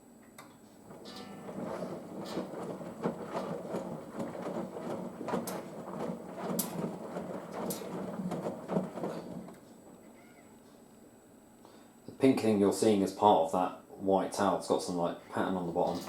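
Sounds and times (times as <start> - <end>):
wet laundry sloshing in drum: 0.8 - 10.1
washing machine drum knocks: 0.9 - 9.6.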